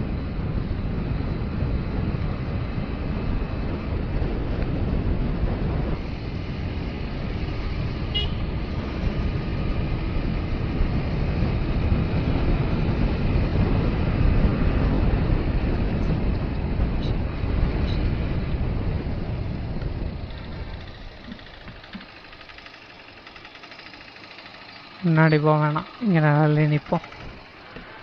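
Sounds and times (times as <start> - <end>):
motorcycle engine: 0.0 - 28.0
road and wind noise: 0.0 - 28.0
horn beeps: 8.2 - 8.4.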